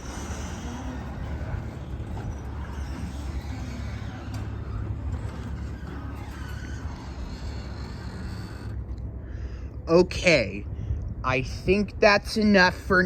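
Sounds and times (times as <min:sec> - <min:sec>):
garage door opener motor hum: 0:00.0 - 0:09.2.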